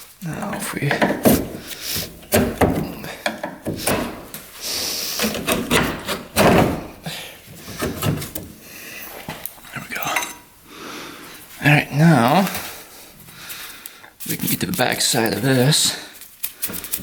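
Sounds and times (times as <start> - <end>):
plastic panel clunking and scraping: 0.3 - 8.7.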